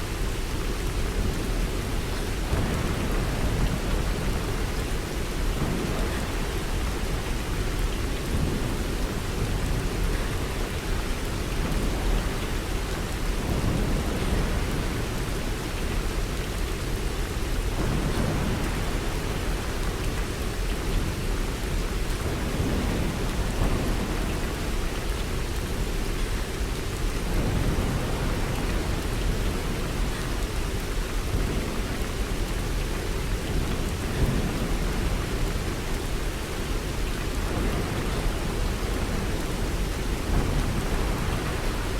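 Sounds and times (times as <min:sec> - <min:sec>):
heavy rain: 0:00.0 - 0:41.9
low rumbles of thunder: 0:17.6 - 0:41.9.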